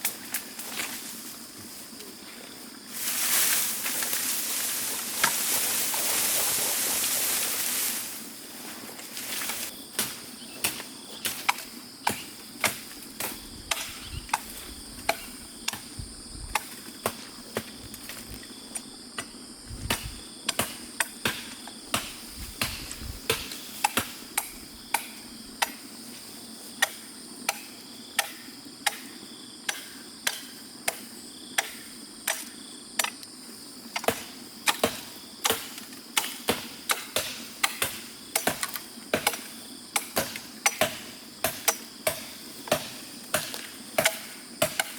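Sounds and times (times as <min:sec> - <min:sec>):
hand tool striking wood: 0:09.4 - 0:15.9, 0:19.2 - 0:25.9, 0:26.8 - 0:29.1, 0:34.0 - 0:44.9.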